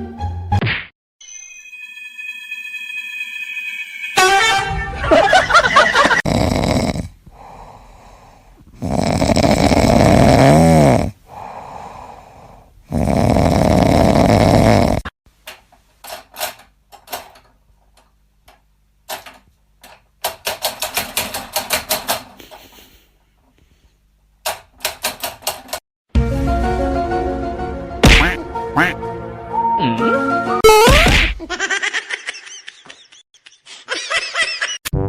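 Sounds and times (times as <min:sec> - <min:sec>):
pet snoring loudly: 0:06.2 - 0:15.1.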